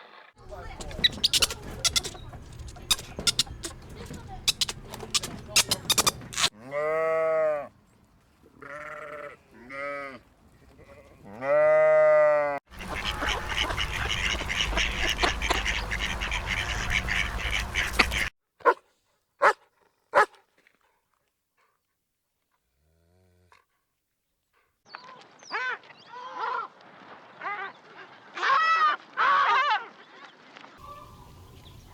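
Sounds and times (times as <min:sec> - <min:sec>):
short sharp animal calls: 0:00.4 - 0:06.5
chorus of animal calls: 0:00.4 - 0:07.6, 0:11.4 - 0:18.3, 0:30.8 - 0:31.9
farm animal bleating: 0:00.4 - 0:07.7, 0:08.6 - 0:10.2.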